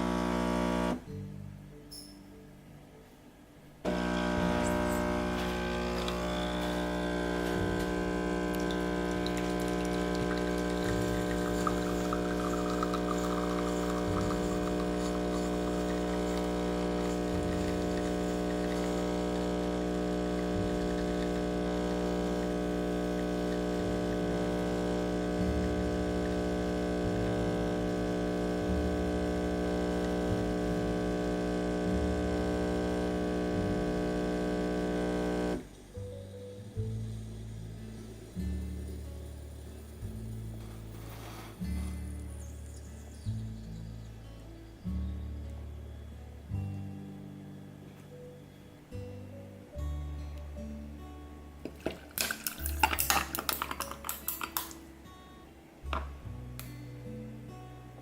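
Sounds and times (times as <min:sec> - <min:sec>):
espresso machine pump humming: 0:00.0 - 0:01.0, 0:03.9 - 0:35.7.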